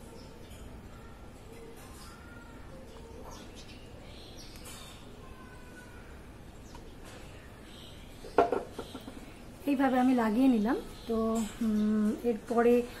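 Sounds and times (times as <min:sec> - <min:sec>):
woman's voice: 0:09.6 - 0:13.0.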